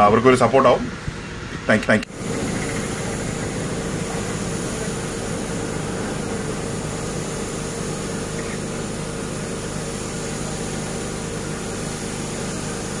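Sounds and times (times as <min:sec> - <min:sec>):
machine running with steady hum: 0:02.1 - 0:13.0.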